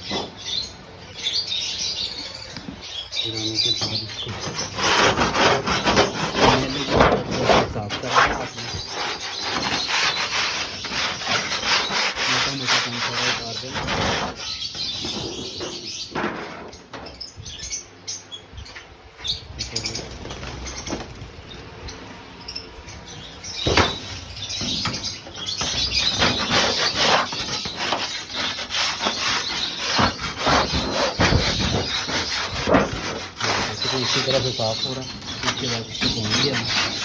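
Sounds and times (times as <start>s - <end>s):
scraping dirt off a tray: 3.7s - 16.8s, 25.6s - 37.0s.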